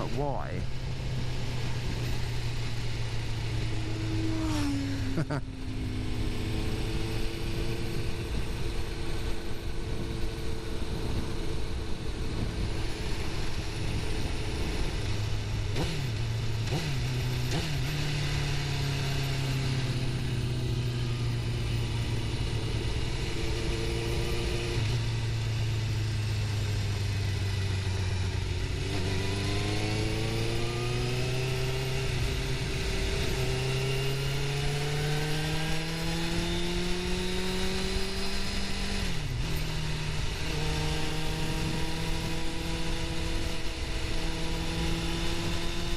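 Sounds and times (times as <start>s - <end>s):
motorcycle engine revving: 0.0s - 45.9s
wind noise: 1.0s - 16.0s.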